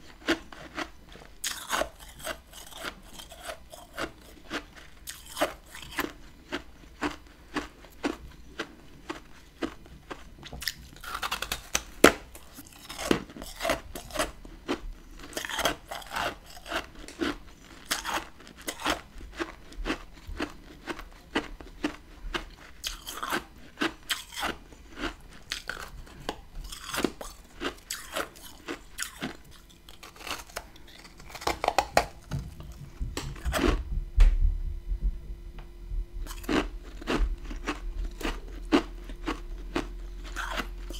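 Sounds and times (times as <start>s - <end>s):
crunching and chewing frost: 0.0s - 33.9s, 36.2s - 40.9s
low rumble: 32.2s - 40.9s.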